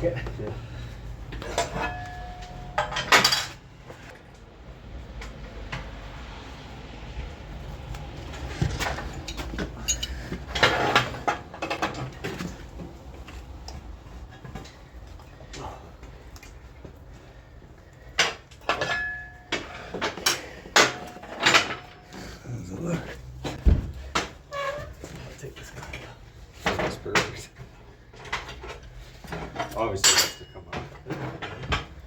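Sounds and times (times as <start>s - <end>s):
steel tools clanking: 0.7s - 3.7s, 8.8s - 12.0s, 18.6s - 22.2s, 28.2s - 31.6s.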